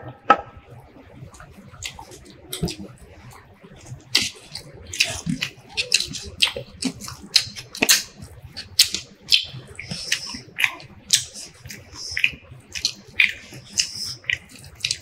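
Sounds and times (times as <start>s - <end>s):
wet chewing: 1.2s - 15.0s
lip smacks: 3.8s - 15.0s.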